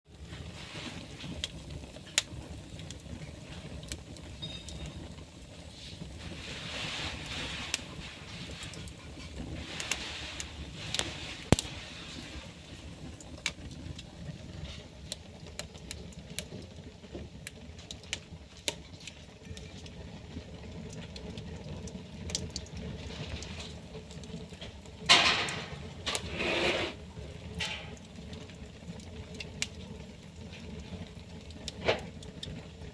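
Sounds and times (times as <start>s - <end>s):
fire crackling and popping: 0.0s - 32.9s
fire rumbling: 0.0s - 32.9s
fire hissing: 0.1s - 32.9s.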